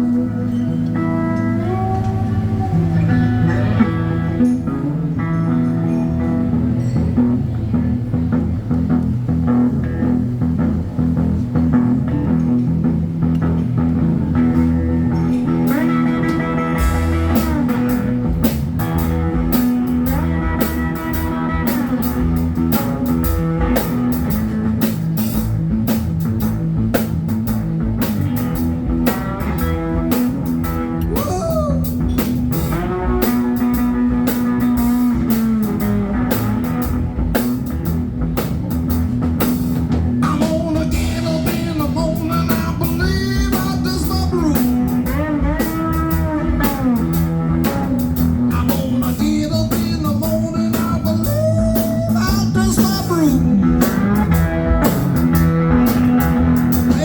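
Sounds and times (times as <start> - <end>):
slide guitar blues: 0.0 - 57.0
steady drum beat: 14.6 - 57.0.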